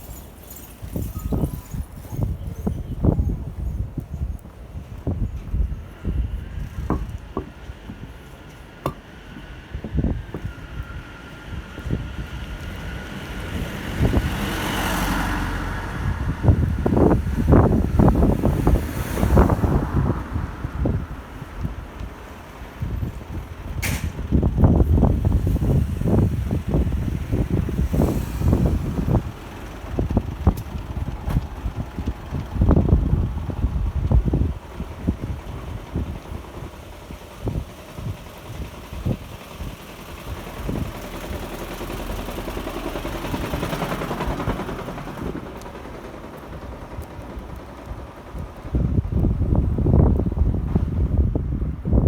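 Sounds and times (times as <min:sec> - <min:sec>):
wind buffeting microphone: 0:00.8 - 0:52.0
vehicle passing: 0:10.6 - 0:21.5.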